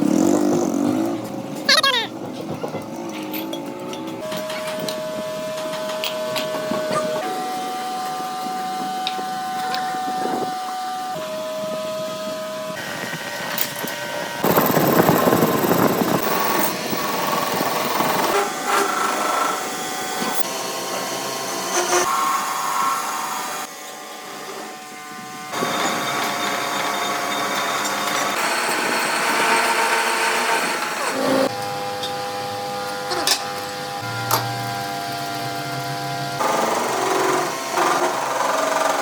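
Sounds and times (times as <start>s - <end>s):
power tools whining: 14.4s - 23.7s.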